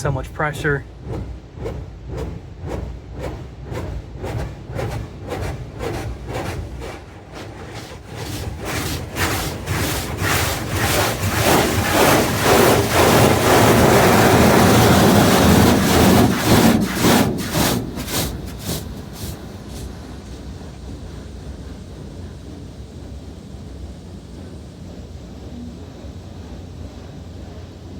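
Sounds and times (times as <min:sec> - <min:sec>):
car wash water jets spraying: 0:00.0 - 0:22.8.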